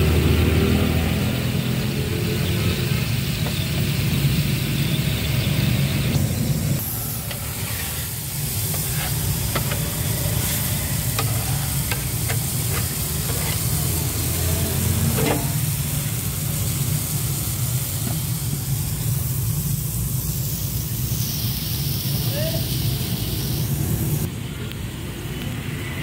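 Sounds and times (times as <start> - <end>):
patties sizzling on a griddle: 0.0 - 24.3
spatula scraping on metal: 7.3 - 14.0, 14.9 - 15.7.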